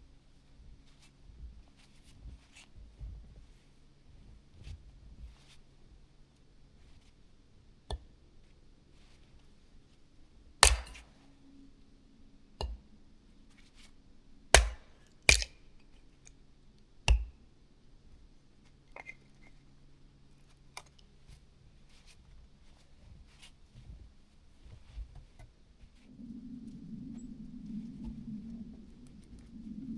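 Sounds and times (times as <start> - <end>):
wood cracking: 10.6 - 11.0, 14.6 - 15.6.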